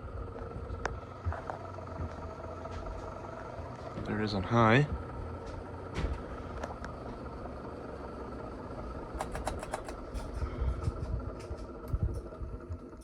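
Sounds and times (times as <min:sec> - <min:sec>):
ceiling fan motor hum: 0:00.0 - 0:13.0
quick clicks: 0:09.2 - 0:10.3.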